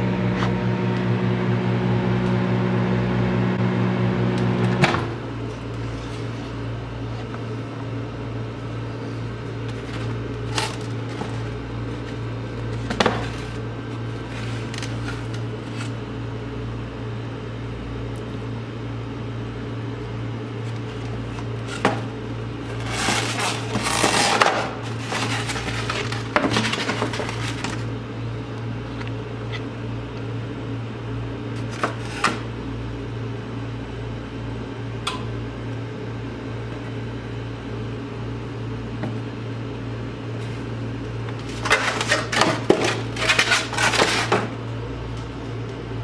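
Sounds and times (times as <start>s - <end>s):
microwave oven humming: 0.0s - 46.0s
microwave click: 35.0s - 35.4s.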